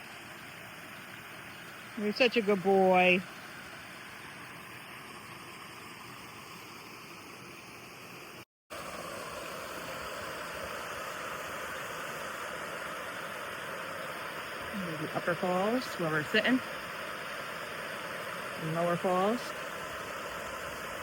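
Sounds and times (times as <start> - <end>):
waterfall rushing: 18.0 - 21.0.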